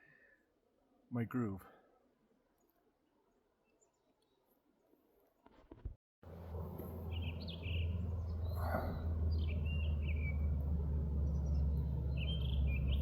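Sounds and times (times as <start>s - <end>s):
bird chirping: 6.8s - 13.0s.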